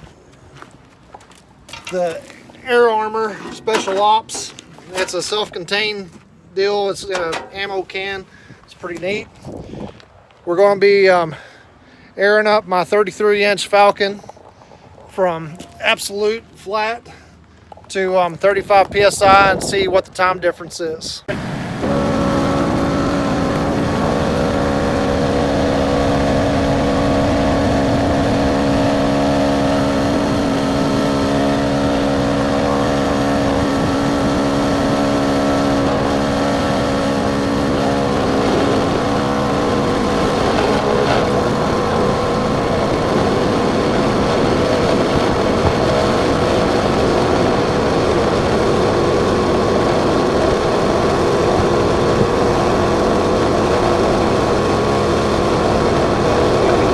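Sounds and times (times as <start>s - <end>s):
air compressor running: 7.1s - 7.7s, 21.3s - 56.9s.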